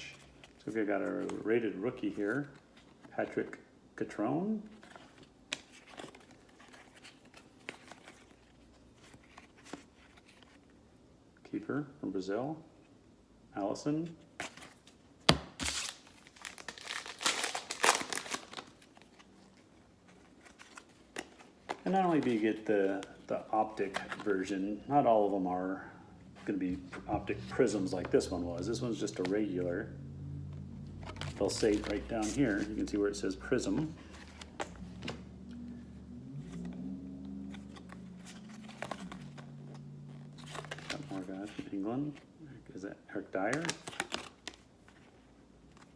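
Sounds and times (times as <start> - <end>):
trading cards being flipped: 14.4 - 24.7, 26.5 - 29.6, 30.5 - 35.4, 37.4 - 41.7
wrapper crinkling: 15.6 - 24.5, 37.5 - 41.3
low steady hum: 15.7 - 43.4.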